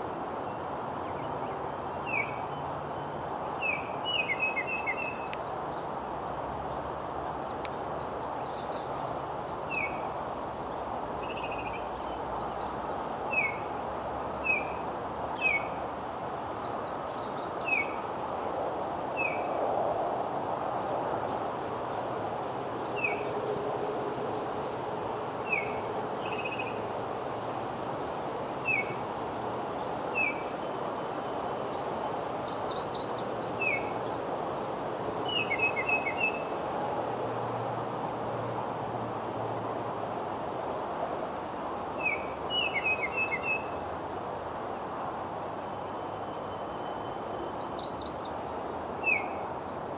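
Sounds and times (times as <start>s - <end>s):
outdoor background hiss: 0.0s - 49.9s
bird chirping: 1.1s - 5.9s, 35.2s - 36.5s, 42.0s - 43.8s, 45.7s - 48.4s.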